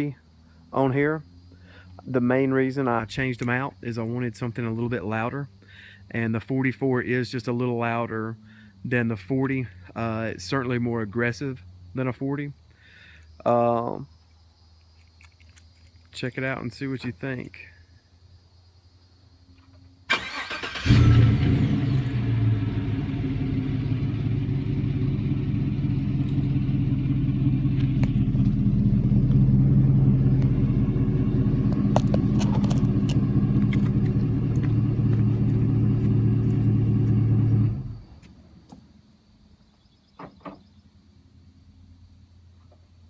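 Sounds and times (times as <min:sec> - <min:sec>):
engine idling deep and low: 0:20.2 - 0:38.7.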